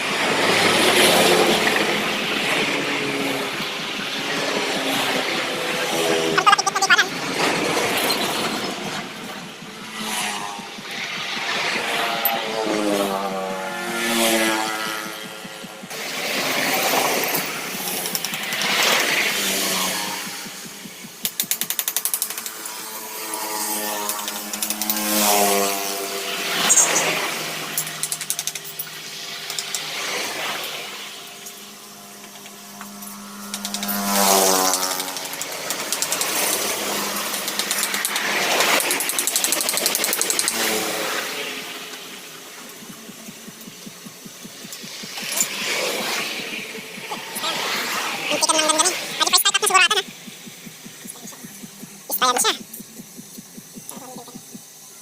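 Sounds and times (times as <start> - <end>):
small engine pulsing: 0.2 - 55.0
motor hum rising in pitch: 0.3 - 28.0, 30.1 - 38.8, 39.5 - 55.0
hand ratchet clicking: 14.1 - 25.6, 27.8 - 28.8, 32.8 - 40.9, 42.7 - 54.9.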